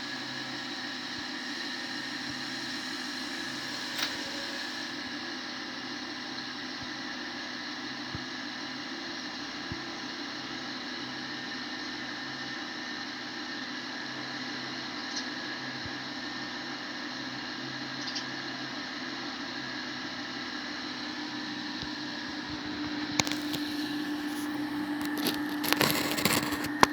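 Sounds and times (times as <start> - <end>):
background hiss and hum: 19.9 - 26.9.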